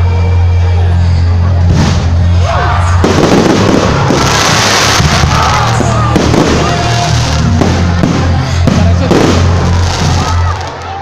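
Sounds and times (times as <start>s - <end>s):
loud music with bass beat: 1.6s - 10.6s
fireworks crackling and popping: 1.7s - 2.2s, 3.0s - 11.0s.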